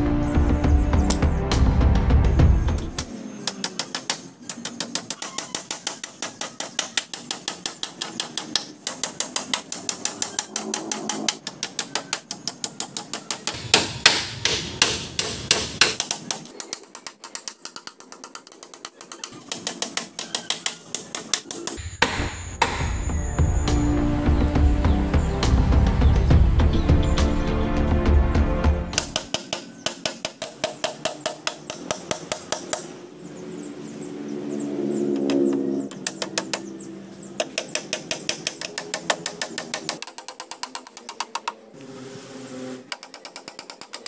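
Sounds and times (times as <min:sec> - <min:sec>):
hammer driving nails into wood: 0:03.4 - 0:22.8, 0:28.9 - 0:32.9, 0:37.4 - 0:41.5.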